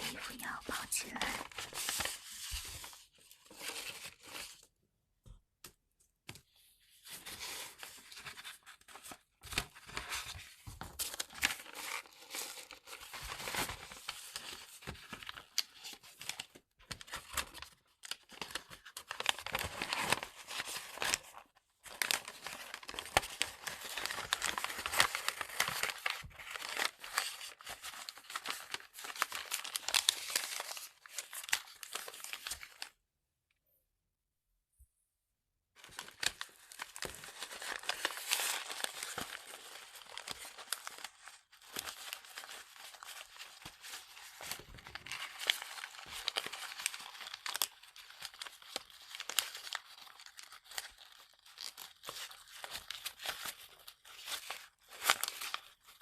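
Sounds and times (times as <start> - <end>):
paper crinkling and rustling: 0.0 - 4.8, 6.2 - 33.0, 35.8 - 56.0.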